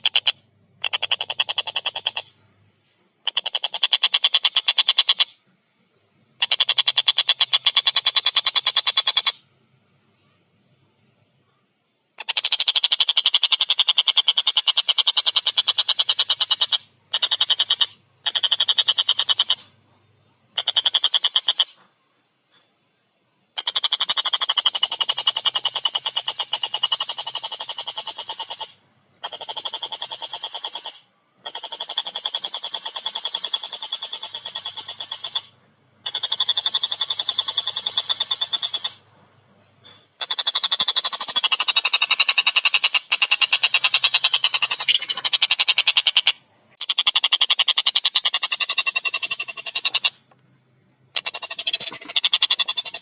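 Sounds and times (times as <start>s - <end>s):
kingfisher chattering call: 41.3s - 50.2s, 51.2s - 53.0s.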